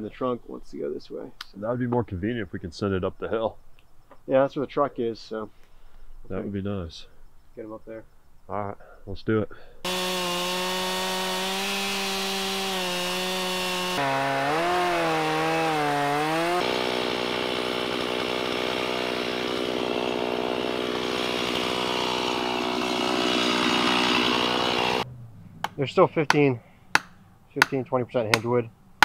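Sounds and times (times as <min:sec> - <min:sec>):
chainsaw cutting wood: 0:09.8 - 0:26.4.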